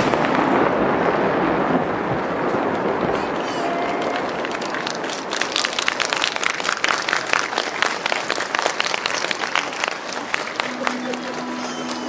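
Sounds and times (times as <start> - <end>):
crowd applauding: 2.7 - 12.0.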